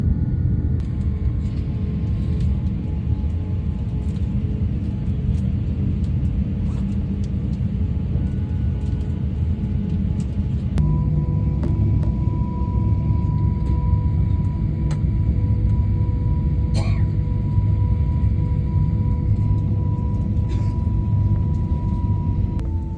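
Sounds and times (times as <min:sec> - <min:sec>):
jet engines rumbling: 0:00.0 - 0:22.9
faint whining tones: 0:06.7 - 0:22.9.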